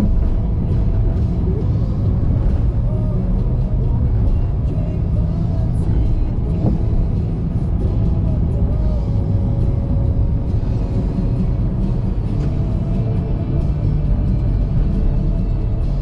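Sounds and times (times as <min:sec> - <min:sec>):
car tyres and engine rumble: 0:00.0 - 0:16.0.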